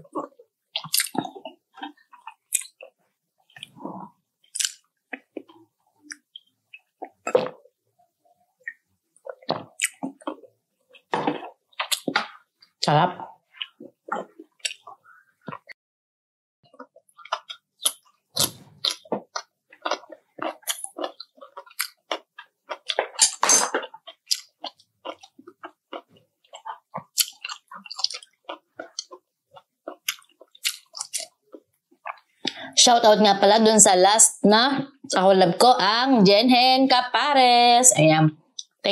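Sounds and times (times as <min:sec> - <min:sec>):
person chewing crunchy food: 0:00.0 - 0:07.8, 0:08.6 - 0:15.8, 0:16.6 - 0:32.7.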